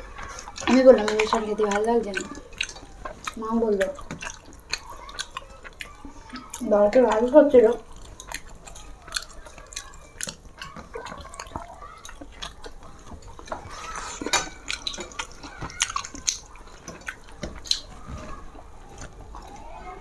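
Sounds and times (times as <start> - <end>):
wet chewing and lip smacks: 0.0 - 19.7
sticky mouth clicks: 0.2 - 18.0.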